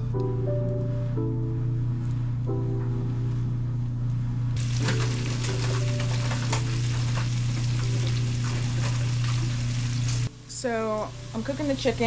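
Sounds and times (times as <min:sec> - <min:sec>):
chicken sizzling in a pan: 0:04.6 - 0:10.3.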